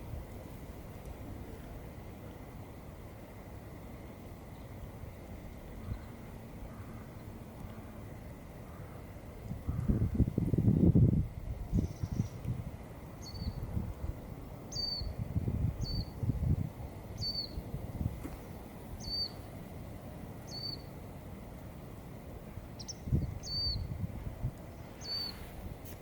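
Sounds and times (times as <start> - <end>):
low rumbling background noise: 0.0 - 26.0
bird chirping: 13.2 - 13.6, 14.7 - 15.1, 15.8 - 16.1, 17.2 - 17.6, 19.0 - 19.4, 20.5 - 20.9, 22.8 - 23.9, 24.8 - 25.4.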